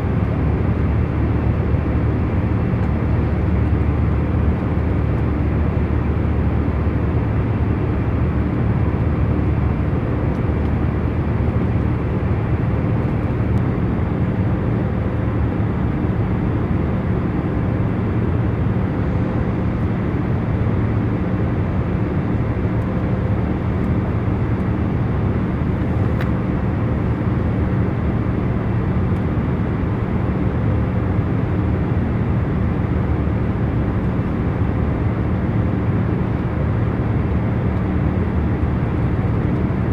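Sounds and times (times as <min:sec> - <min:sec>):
airliner cabin hum: 0:17.5 - 0:30.2.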